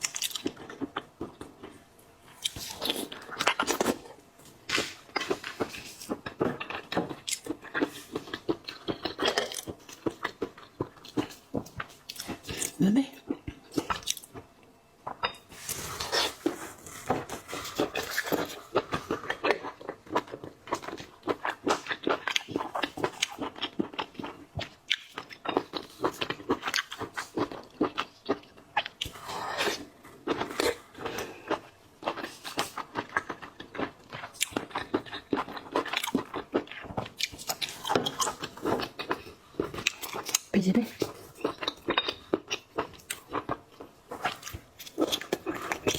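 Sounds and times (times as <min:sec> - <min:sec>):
person chewing crunchy seafood: 0:00.0 - 0:14.5, 0:15.1 - 0:45.9.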